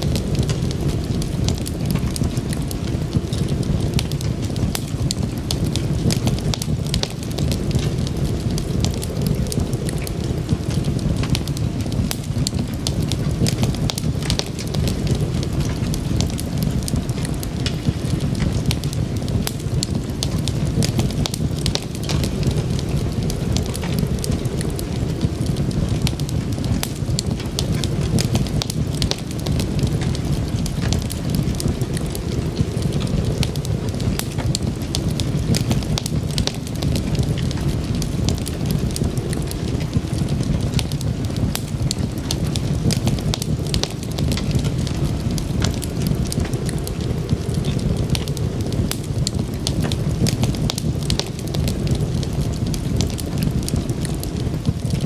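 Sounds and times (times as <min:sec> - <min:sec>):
low rumble of flames: 0:00.0 - 0:55.0
wood fire crackling and popping: 0:00.0 - 0:55.0.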